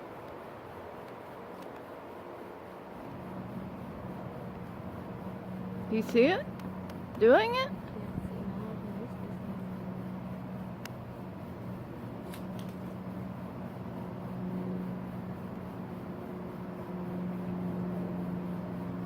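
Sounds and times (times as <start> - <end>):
low mechanical hum: 0.0 - 19.0
faint clicks: 6.1 - 8.0.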